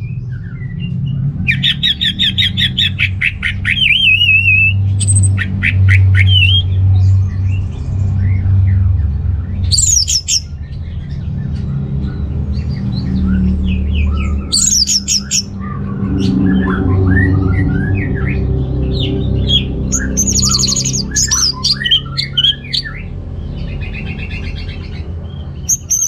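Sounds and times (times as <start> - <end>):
steady low hum: 0.0 - 25.7
thrush singing whistled notes: 0.4 - 6.9, 12.6 - 23.1
rapid high twittering: 0.7 - 26.0.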